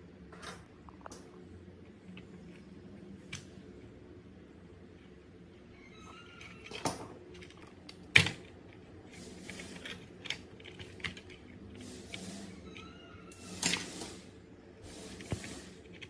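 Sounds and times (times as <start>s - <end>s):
small hard parts clicking: 6.1s - 12.2s.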